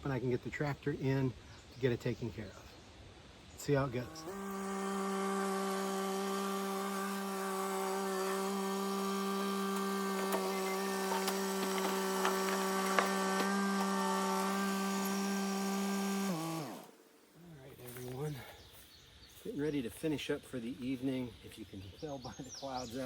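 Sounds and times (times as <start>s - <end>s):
tractor engine droning: 4.0s - 16.9s
wooden cracks and creaks: 9.7s - 14.5s.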